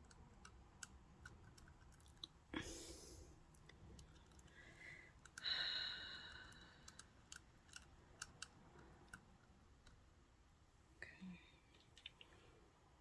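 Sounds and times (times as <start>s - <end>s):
faint clicks of metal parts: 3.5s - 5.6s.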